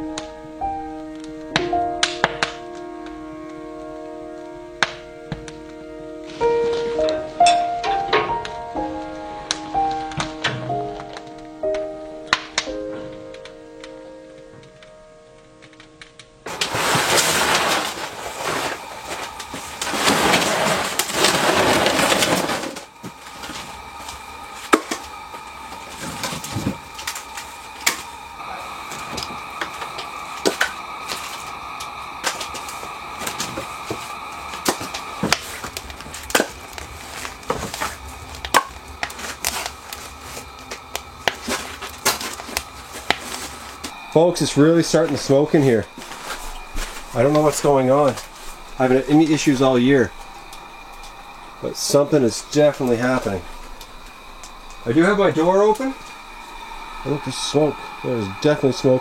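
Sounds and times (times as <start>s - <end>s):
kindling crackling in wood stove: 0.0s - 59.0s
loud steady rushing noise: 16.5s - 59.0s.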